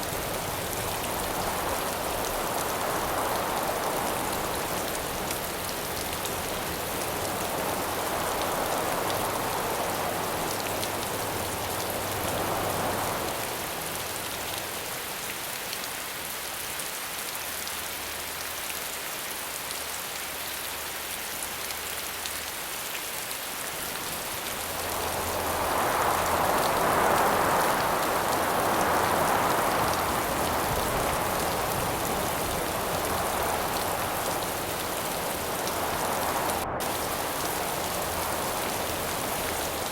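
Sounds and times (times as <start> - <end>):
wind howling: 0.0 - 14.4, 24.0 - 39.9
steady rain: 0.0 - 39.9.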